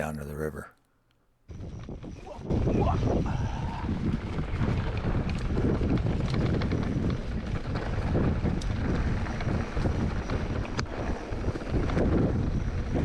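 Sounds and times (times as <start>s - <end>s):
wind buffeting microphone: 1.5s - 13.0s
bike clicks and rattles: 3.8s - 13.0s.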